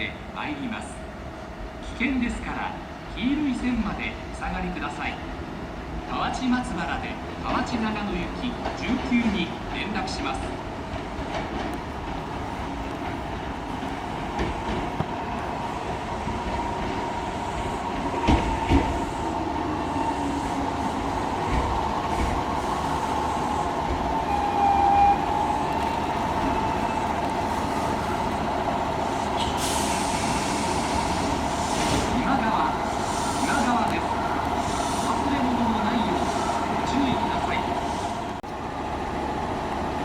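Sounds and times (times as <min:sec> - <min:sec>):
train thumps: 0:10.4 - 0:15.5, 0:16.2 - 0:32.4
electric train running hum: 0:10.4 - 0:40.0
air hiss: 0:29.1 - 0:32.2, 0:32.8 - 0:33.8.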